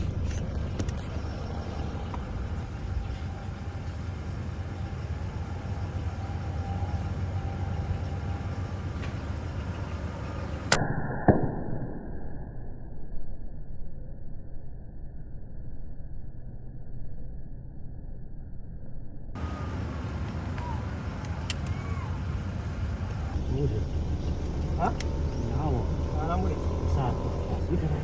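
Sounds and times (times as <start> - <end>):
low rumble and hiss: 0.0 - 10.8, 13.1 - 28.0
sharp cracks: 20.2 - 23.4.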